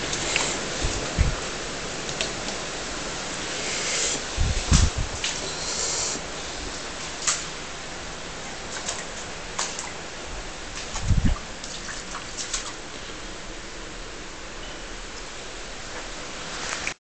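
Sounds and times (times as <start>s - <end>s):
rain hissing: 0.0s - 8.4s
running floodwater: 0.0s - 14.5s.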